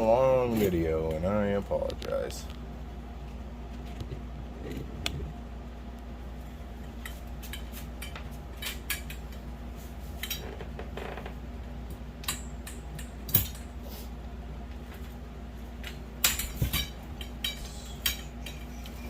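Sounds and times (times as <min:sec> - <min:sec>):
steady low hum: 0:00.0 - 0:19.0
metal poles clinking: 0:15.8 - 0:19.0.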